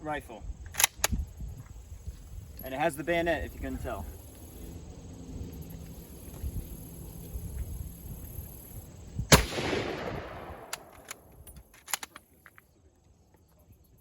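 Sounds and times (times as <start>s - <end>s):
rifle shot with echo: 9.3s - 11.3s.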